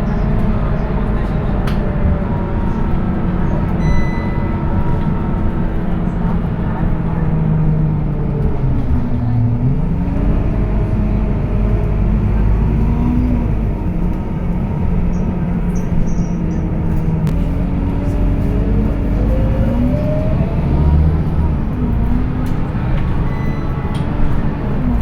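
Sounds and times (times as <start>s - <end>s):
bus diesel engine running: 0.0s - 25.0s.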